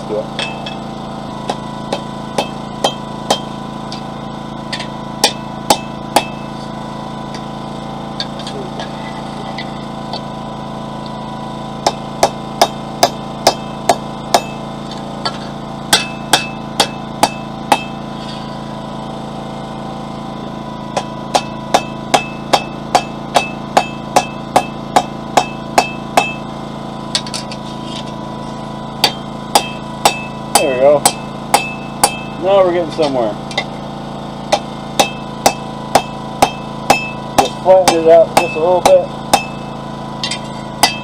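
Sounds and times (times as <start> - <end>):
hammer striking steel on anvil: 0.3 - 4.1, 4.7 - 6.6, 11.8 - 18.4, 21.0 - 26.4, 27.1 - 28.1, 29.0 - 33.8, 34.5 - 41.0.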